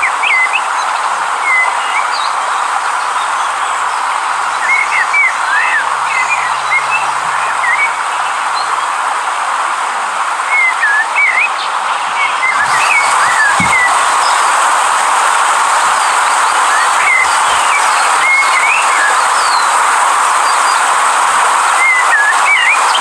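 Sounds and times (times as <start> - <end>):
river water rushing: 0.0 - 23.0
small birds chirping: 3.0 - 9.0, 10.5 - 23.0.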